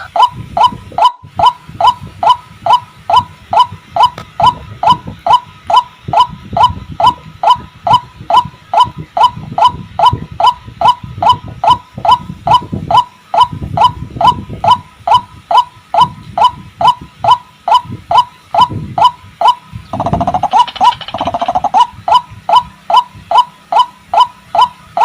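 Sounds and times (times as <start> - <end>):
waterhen calling: 0.0 - 13.5, 14.7 - 25.0.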